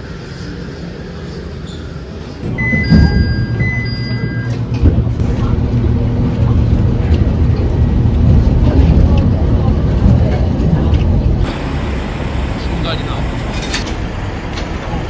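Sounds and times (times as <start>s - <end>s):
vehicle rumble: 2.3s - 15.0s
electronic chime: 2.6s - 4.6s.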